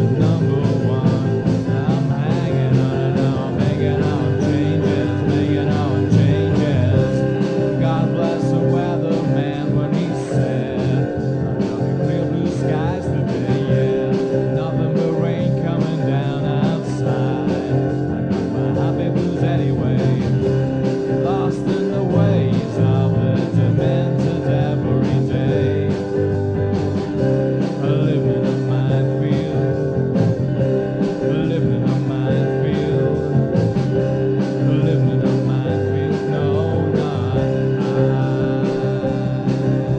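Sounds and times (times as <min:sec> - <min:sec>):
rock band playing: 0:00.0 - 0:39.9
steady drum beat: 0:00.0 - 0:39.9.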